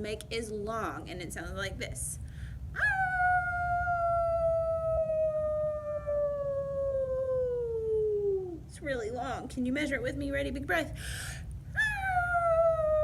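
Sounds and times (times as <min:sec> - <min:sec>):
dog howling: 0:02.8 - 0:08.6, 0:11.8 - 0:13.0.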